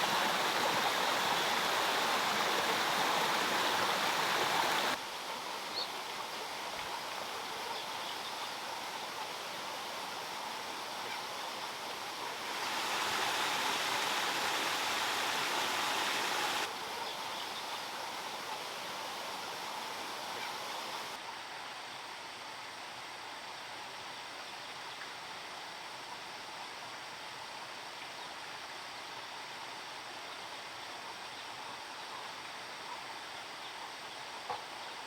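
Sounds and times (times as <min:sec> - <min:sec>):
waterfall flowing and splashing: 0:00.0 - 0:24.4.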